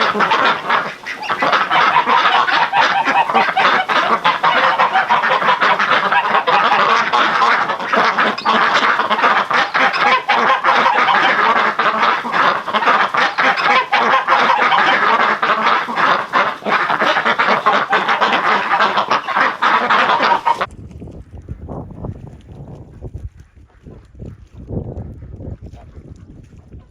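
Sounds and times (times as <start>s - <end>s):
ducks and geese honking and quacking: 0.0s - 20.7s.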